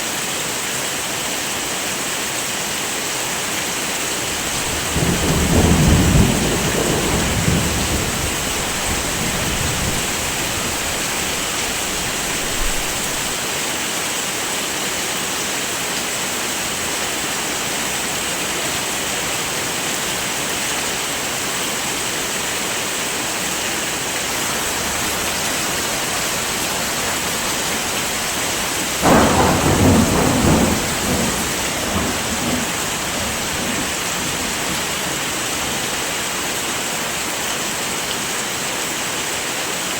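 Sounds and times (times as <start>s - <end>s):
heavy rain: 0.0s - 39.9s
thunder rumbling: 4.2s - 13.4s, 24.2s - 35.8s.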